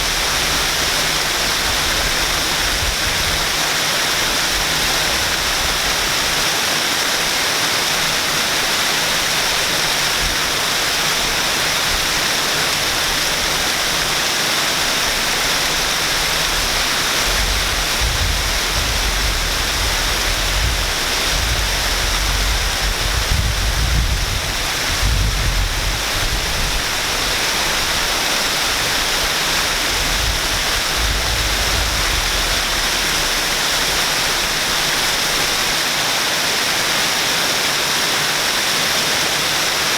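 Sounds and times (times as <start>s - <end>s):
waterfall rushing: 0.0s - 39.9s
low rumble: 16.6s - 26.1s, 29.7s - 34.6s.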